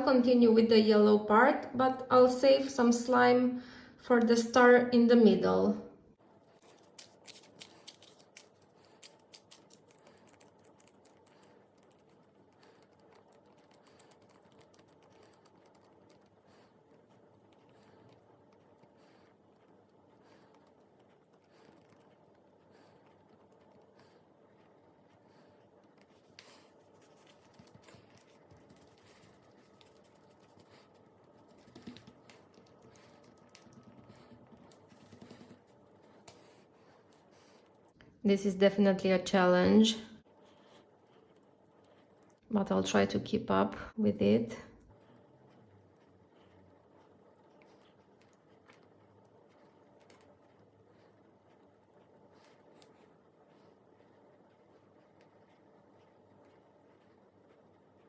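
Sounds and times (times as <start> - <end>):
slime clicking and squelching: 6.6 - 38.1.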